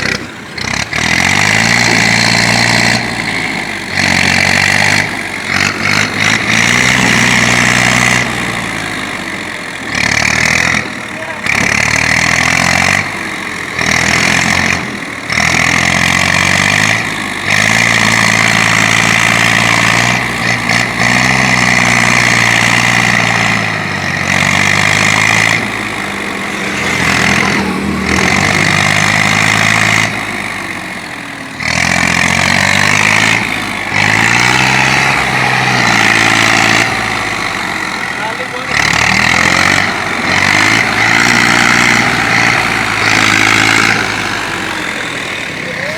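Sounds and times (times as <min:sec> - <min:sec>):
diesel tractor engine running: 0:00.0 - 0:45.9.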